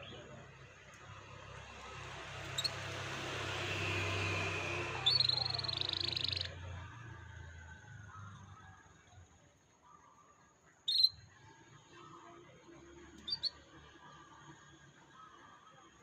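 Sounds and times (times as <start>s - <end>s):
canary calling: 1.9s - 3.0s, 4.8s - 6.7s, 10.9s - 11.2s, 13.2s - 13.6s.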